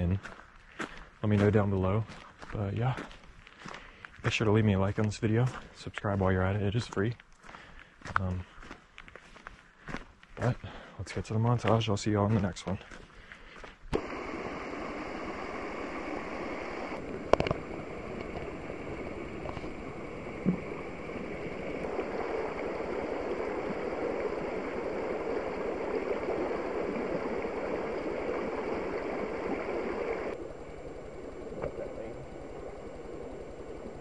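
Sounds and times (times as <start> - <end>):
stream water rushing: 14.0 - 34.0.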